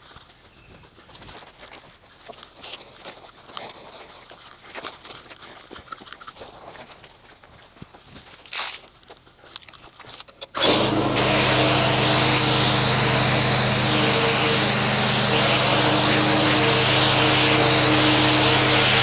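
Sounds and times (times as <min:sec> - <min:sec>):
pressure washer motor hum: 0:10.6 - 0:19.0
water spray hissing: 0:10.6 - 0:19.0.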